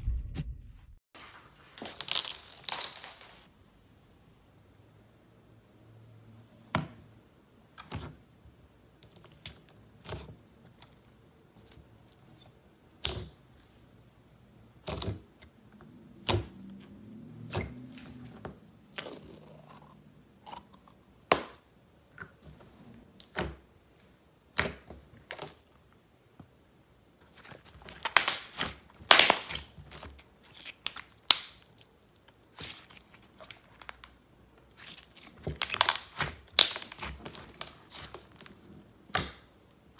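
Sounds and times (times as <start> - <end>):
slime clicking and popping: 28.0 - 29.7, 30.6 - 31.8, 35.6 - 38.2.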